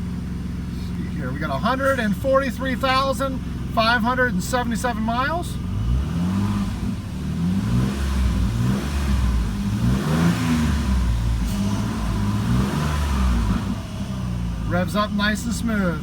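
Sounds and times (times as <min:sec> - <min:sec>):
car engine revving in blips: 0:05.5 - 0:16.0.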